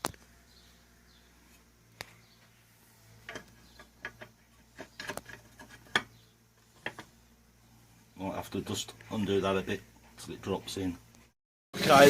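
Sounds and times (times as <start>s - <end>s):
metal engine parts clicking: 3.2s - 7.1s.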